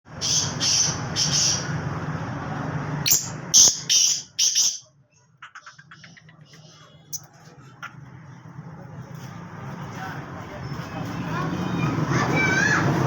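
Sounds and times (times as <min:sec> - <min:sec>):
bird calling harsh high notes: 0:03.1 - 0:04.9.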